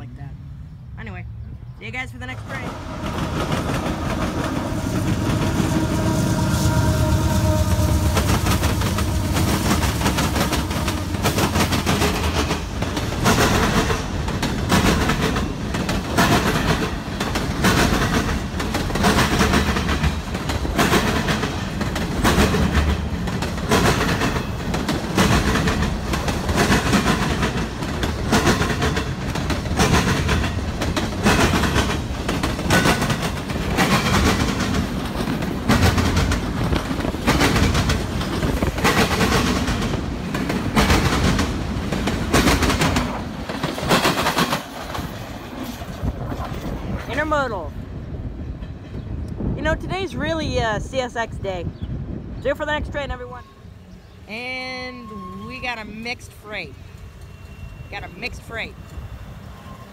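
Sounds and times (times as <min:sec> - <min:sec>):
freight train rumbling: 0:00.0 - 0:59.9
held horn tones: 0:02.2 - 0:11.8
wheels clacking over rail joints: 0:02.4 - 0:47.6.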